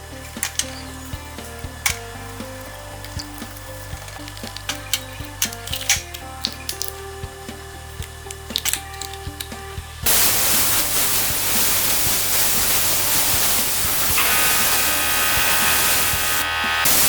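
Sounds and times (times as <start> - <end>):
background music: 0.0 - 17.0
spraying hiss: 10.0 - 17.0.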